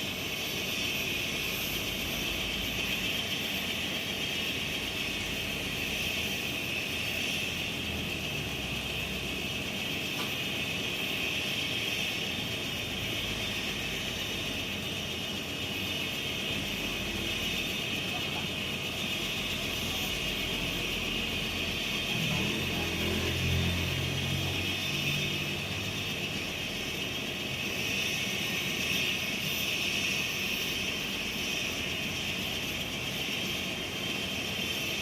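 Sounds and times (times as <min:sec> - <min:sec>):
helicopter turbine whine: 0:00.0 - 0:35.0.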